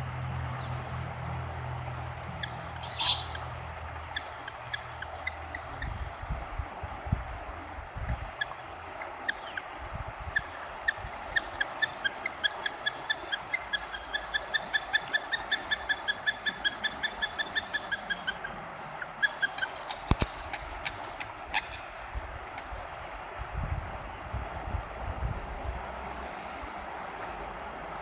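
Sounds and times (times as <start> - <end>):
river water rushing: 0.0 - 28.0
bird calling sharp notes: 2.3 - 6.1, 10.4 - 21.8.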